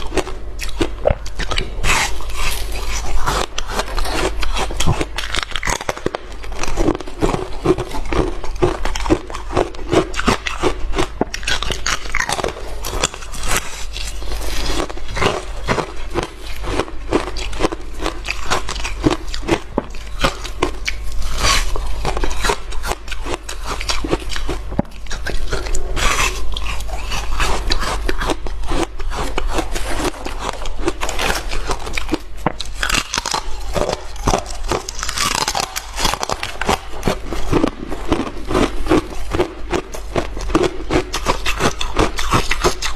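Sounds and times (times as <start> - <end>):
ice being chewed: 0.0 - 42.9.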